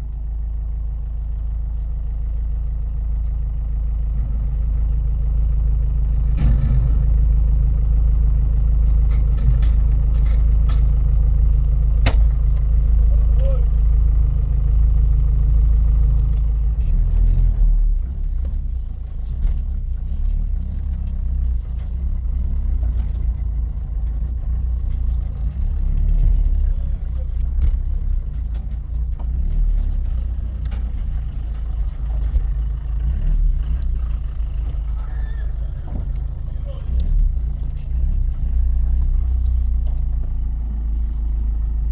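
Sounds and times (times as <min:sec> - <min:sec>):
vehicle engine droning: 0:00.0 - 0:41.9
light clicks and rattles: 0:16.2 - 0:41.6.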